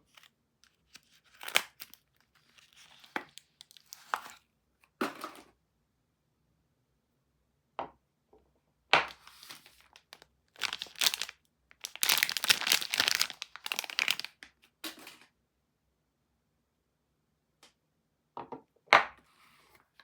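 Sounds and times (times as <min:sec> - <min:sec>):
wrapper tearing and crinkling: 0:00.1 - 0:04.4, 0:09.1 - 0:14.5.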